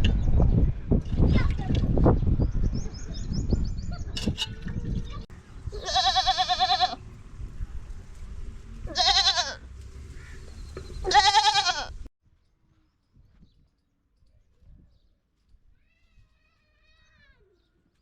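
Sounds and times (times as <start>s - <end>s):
goat bleating: 5.7s - 7.0s, 8.9s - 9.6s, 11.0s - 12.0s.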